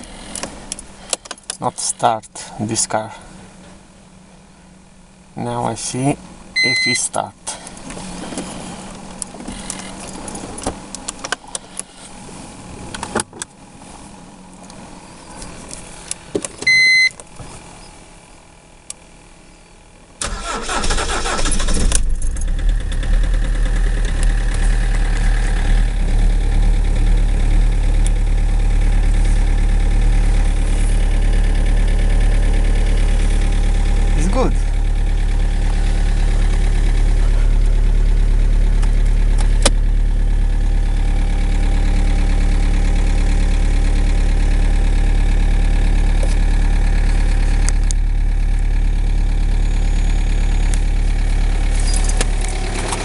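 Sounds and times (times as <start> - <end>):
engine idling: 0.0 - 53.0
short electronic beep: 6.6 - 7.0, 16.7 - 17.1
diesel engine cranking: 20.2 - 53.0.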